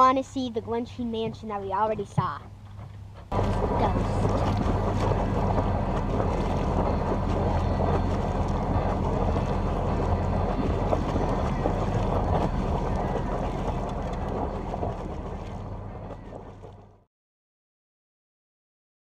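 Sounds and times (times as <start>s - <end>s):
water noise: 0.0s - 17.1s
steady low drone: 3.2s - 17.1s
wind buffeting microphone: 3.3s - 17.0s.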